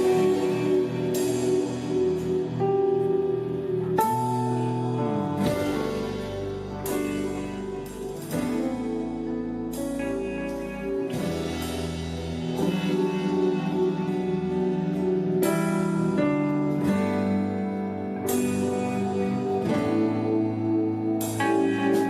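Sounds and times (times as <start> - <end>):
cymbal crash: 0.0 - 17.5
held guitar notes: 0.0 - 22.0
live rock band playing: 0.0 - 22.0.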